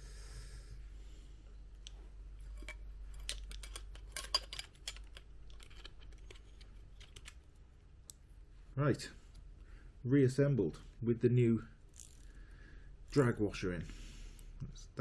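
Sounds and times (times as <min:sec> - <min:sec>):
clicks of small metal parts: 0:01.8 - 0:08.3, 0:11.9 - 0:12.4.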